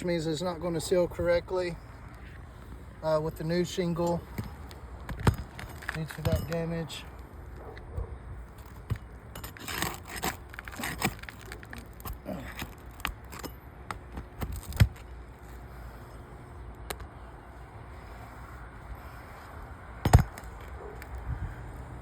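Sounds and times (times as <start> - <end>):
tool scraping roof shingles: 8.6 - 15.1.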